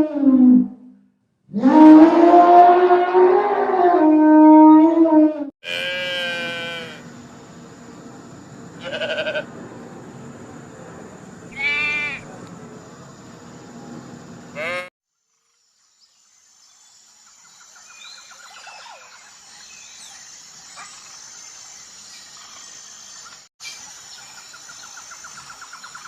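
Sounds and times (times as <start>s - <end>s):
goat bleating: 8.8s - 9.5s, 11.6s - 12.2s, 14.6s - 14.9s.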